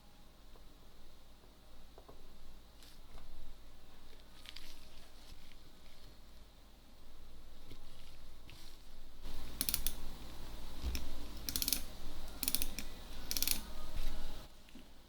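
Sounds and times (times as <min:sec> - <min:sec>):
mechanism clicking and ratcheting: 0:09.3 - 0:10.1, 0:10.9 - 0:13.7.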